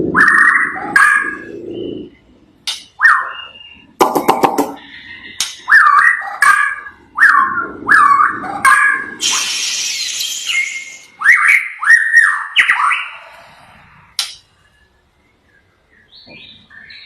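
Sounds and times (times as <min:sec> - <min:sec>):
songbird singing: 0:00.0 - 0:13.4, 0:14.0 - 0:17.0.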